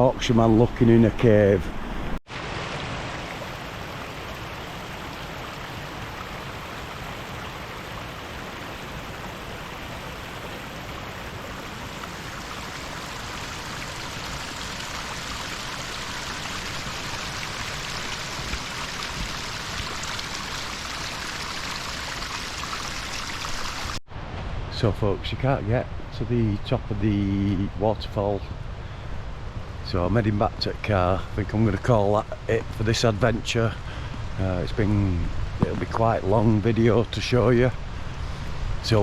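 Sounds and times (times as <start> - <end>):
stream and waterfall rushing: 0.0 - 24.7.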